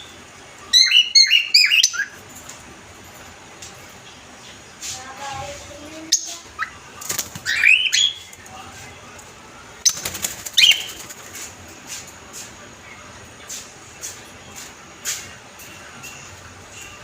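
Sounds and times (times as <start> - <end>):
cockatiels whistling calls: 0.7 - 2.2.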